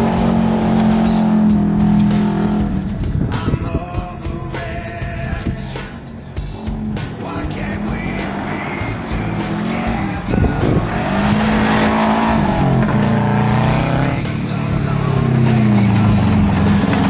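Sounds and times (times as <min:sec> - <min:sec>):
rally car engine accelerating: 0:00.0 - 0:03.6, 0:05.8 - 0:17.0.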